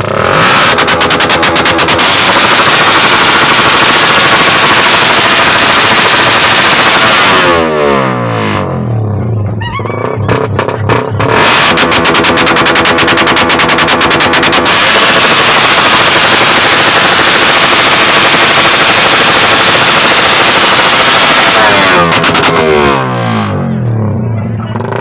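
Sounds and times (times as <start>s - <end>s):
motorcycle engine revving: 0.0s - 25.0s
exhaust pops: 0.6s - 7.3s.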